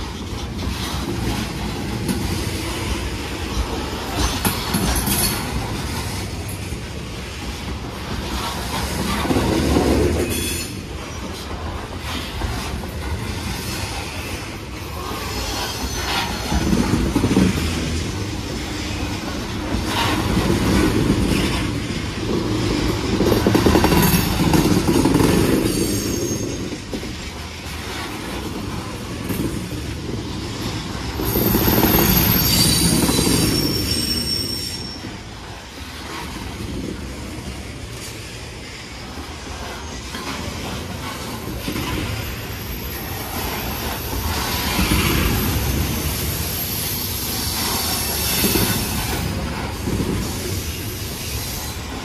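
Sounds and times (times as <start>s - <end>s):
train wheels rumbling on rail: 0.0s - 52.0s
high-pitched wheel squeal: 25.6s - 26.7s, 31.2s - 35.2s.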